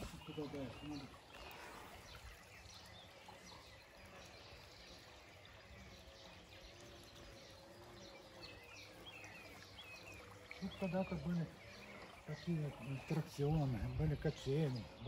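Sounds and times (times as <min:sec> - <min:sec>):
faint songbird chirps: 0:00.0 - 0:15.0.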